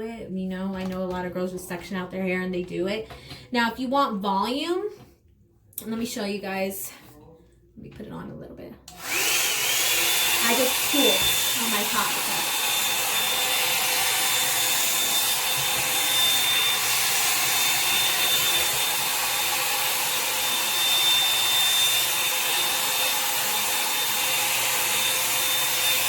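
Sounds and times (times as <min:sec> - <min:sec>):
hair dryer brush blowing: 0:08.9 - 0:26.0.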